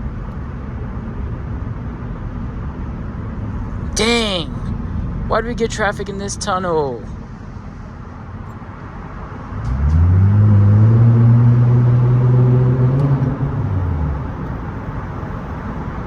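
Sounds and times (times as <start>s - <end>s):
car exhaust revving: 9.4s - 15.4s.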